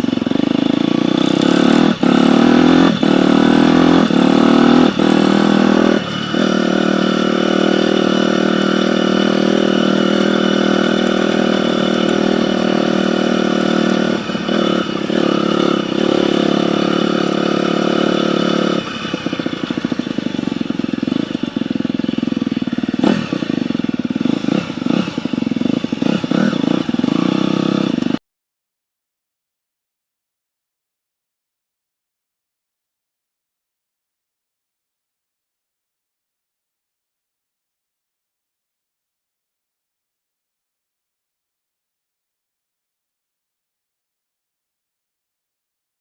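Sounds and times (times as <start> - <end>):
dirt bike engine running: 0.0 - 28.2.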